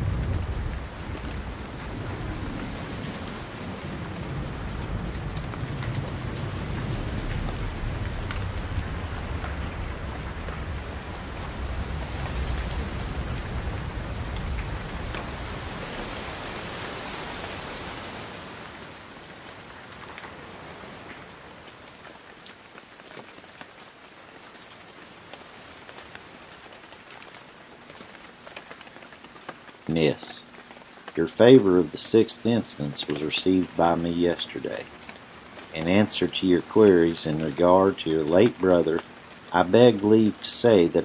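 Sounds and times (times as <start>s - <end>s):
low rumble: 0.0s - 15.1s
rain falling: 0.0s - 41.0s.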